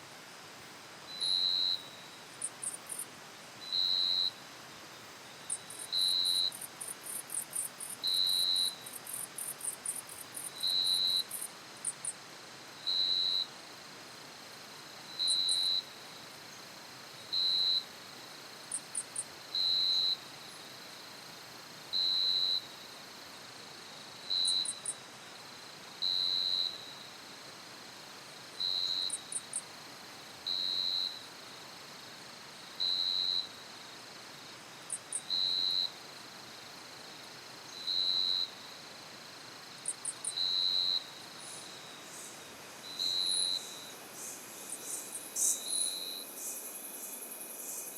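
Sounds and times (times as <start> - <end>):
insect rapid high trill: 39.8 - 47.9
insect short high tone: 39.8 - 47.9.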